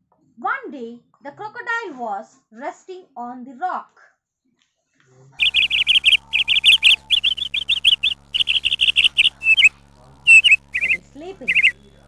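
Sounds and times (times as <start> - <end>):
low steady hum: 5.4 - 12.0
small bird chirping: 5.4 - 12.0.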